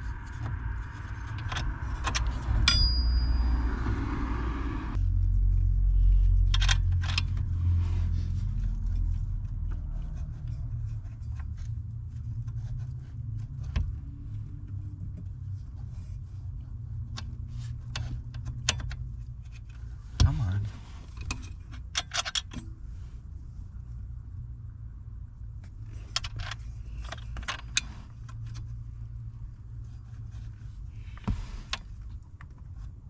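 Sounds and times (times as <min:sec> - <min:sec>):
low rumble: 0:00.0 - 0:15.3.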